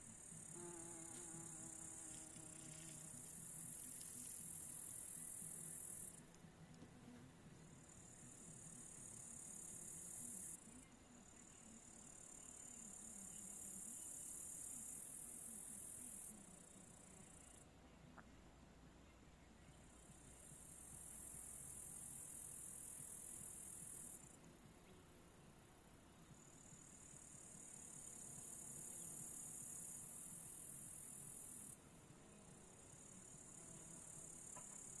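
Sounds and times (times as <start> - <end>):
insect buzzing trill: 0.2 - 6.1.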